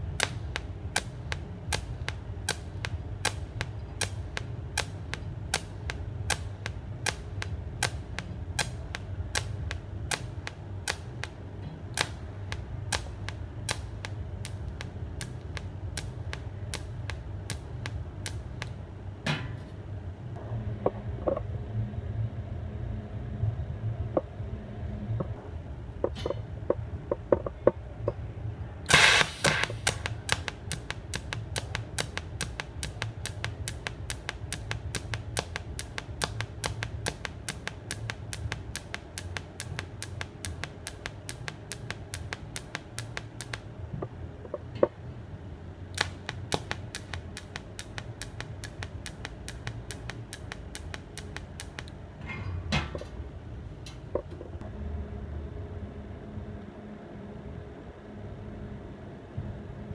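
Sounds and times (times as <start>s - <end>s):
welding arc pulsing clicks: 0.0s - 18.8s, 28.9s - 44.9s, 45.9s - 52.0s
steady low hum: 0.0s - 59.9s
loud welding arc start: 28.9s - 43.6s.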